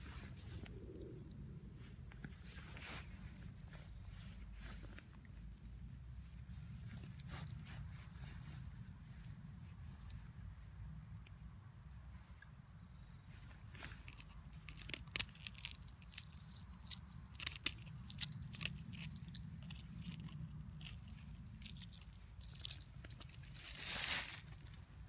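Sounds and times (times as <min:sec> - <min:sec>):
rustling: 0:13.3 - 0:25.0
crunching and crackling clicks: 0:13.7 - 0:25.0.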